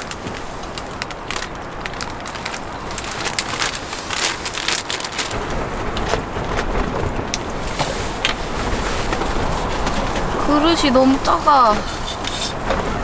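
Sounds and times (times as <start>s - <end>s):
utensil scraping in bowl: 8.8s - 13.0s.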